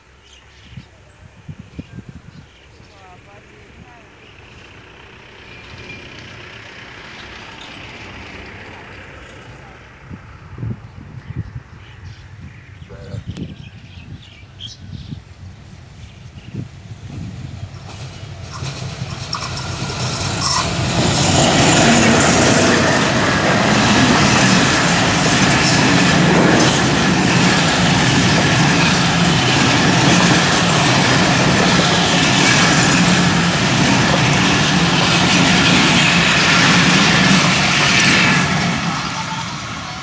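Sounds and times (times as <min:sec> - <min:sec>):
diesel locomotive approaching: 0:00.0 - 0:12.4, 0:13.6 - 0:40.0
train coaches rumbling past: 0:02.6 - 0:11.0, 0:15.3 - 0:40.0
wheel clatter on rails: 0:17.9 - 0:38.2.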